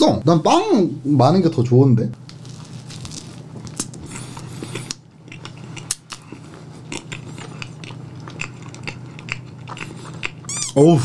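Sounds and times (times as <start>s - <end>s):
steady low hum: 0.0s - 11.0s
person chewing wetly: 2.3s - 10.5s.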